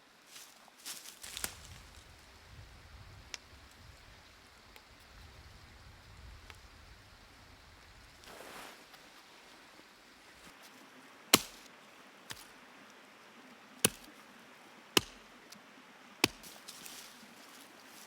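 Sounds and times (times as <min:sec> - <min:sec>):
creek flowing: 0:08.2 - 0:18.0
wood chopping strikes: 0:11.3 - 0:11.7, 0:13.8 - 0:14.1, 0:15.0 - 0:15.3, 0:16.2 - 0:17.0.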